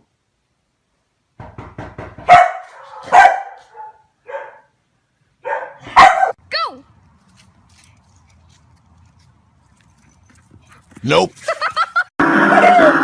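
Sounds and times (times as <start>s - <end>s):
dog barking: 2.2s - 4.8s, 5.4s - 6.4s.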